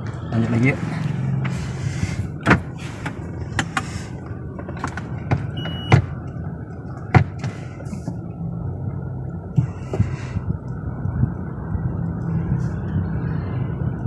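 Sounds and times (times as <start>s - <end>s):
short beep: 5.6s - 6.0s.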